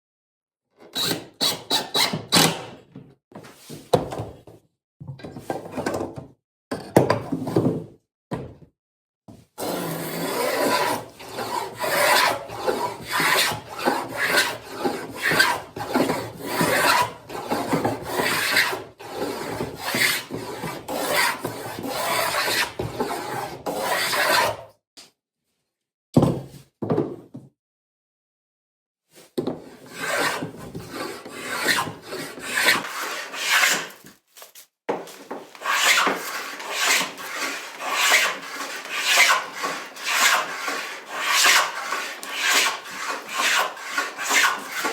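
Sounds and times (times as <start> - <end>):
hand tool rasping wood: 9.6 - 24.5, 29.9 - 34.1, 35.3 - 44.9.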